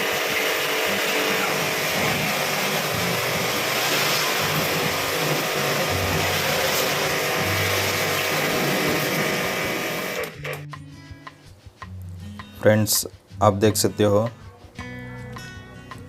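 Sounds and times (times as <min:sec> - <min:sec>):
pressure washer spraying: 0:00.0 - 0:10.4.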